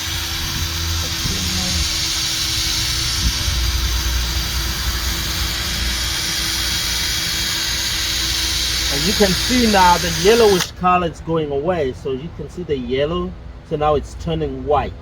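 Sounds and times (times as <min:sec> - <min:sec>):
electric drill sanding whir: 0:00.0 - 0:10.7.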